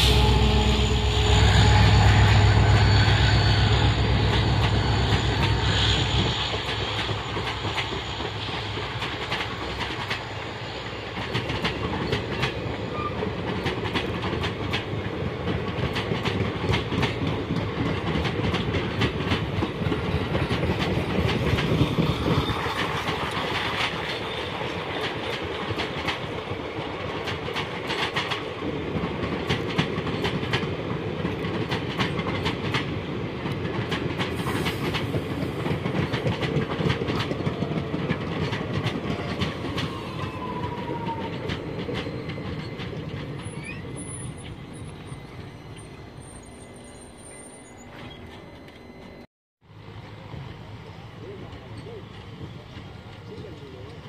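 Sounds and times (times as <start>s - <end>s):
faint brake squeal: 0.0s - 13.8s, 21.7s - 23.4s, 39.5s - 49.3s
train rumble: 0.0s - 54.0s
train wheels clicking over rail joints: 4.1s - 45.0s.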